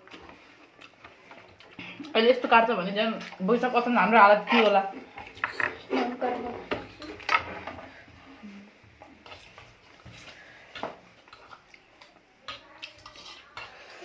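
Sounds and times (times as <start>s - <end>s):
chewing and mouth noises: 0.0s - 2.2s, 9.2s - 14.0s.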